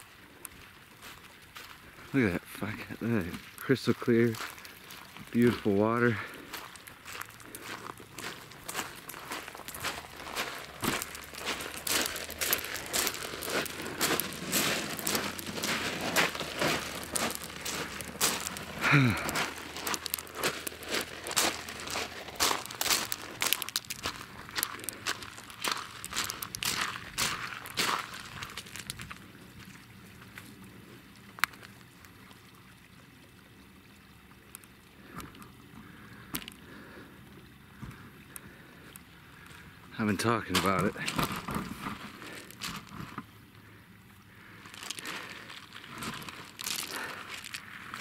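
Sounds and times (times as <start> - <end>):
crunching footsteps on rough ground: 0.0 - 31.8, 39.4 - 43.3, 44.4 - 48.0
faint running water: 0.0 - 48.0
falling grunt-like voice: 18.8 - 19.4.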